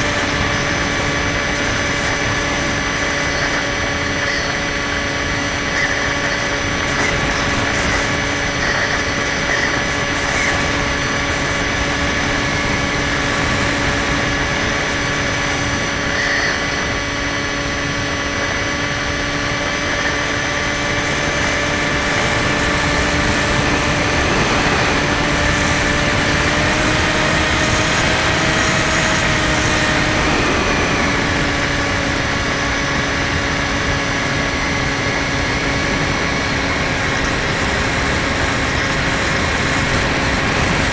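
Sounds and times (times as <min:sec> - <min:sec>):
model plane motor whine: 0:00.0 - 0:40.9
wind noise: 0:00.0 - 0:40.9.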